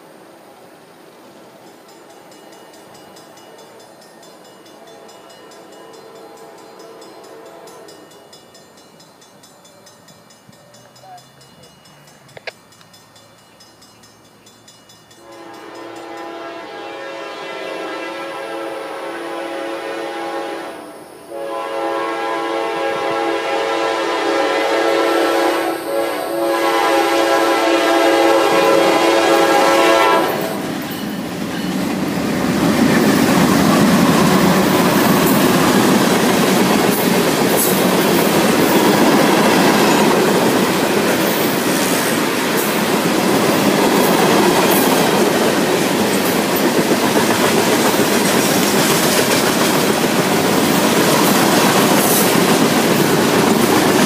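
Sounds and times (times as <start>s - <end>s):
train rumbling: 0.0s - 54.0s
locomotive horn blasts: 4.8s - 8.0s, 15.2s - 30.7s.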